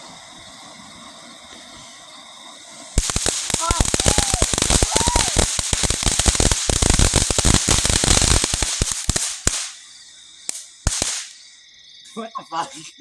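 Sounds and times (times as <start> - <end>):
firework crackling pops: 0.0 - 11.5
firework bangs: 2.7 - 11.5.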